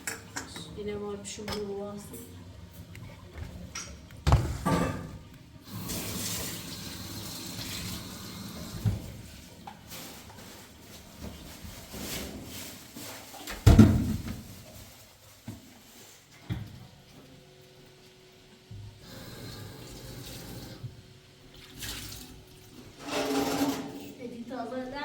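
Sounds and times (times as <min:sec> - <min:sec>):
dishes and pots clattering: 0:00.0 - 0:00.7, 0:03.2 - 0:05.3, 0:22.8 - 0:24.2
water running from a tap: 0:05.6 - 0:09.4, 0:19.0 - 0:22.9.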